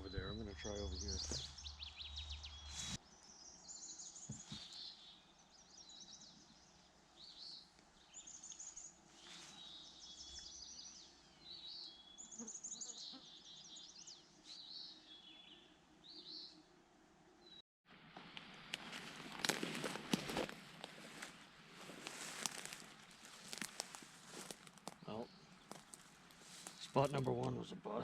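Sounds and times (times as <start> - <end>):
songbirds singing trilled phrases: 0.0 - 16.6.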